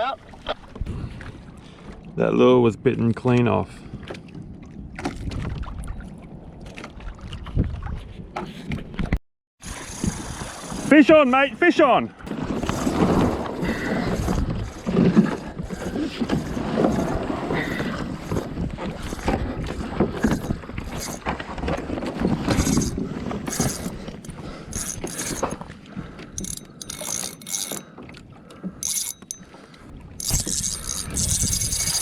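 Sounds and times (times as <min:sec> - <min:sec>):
sea and kayak hull noise: 0:00.0 - 0:32.0
fishing reel clicking and ratcheting: 0:20.2 - 0:21.2, 0:22.5 - 0:25.6, 0:26.4 - 0:27.9, 0:28.8 - 0:29.4, 0:30.2 - 0:32.0.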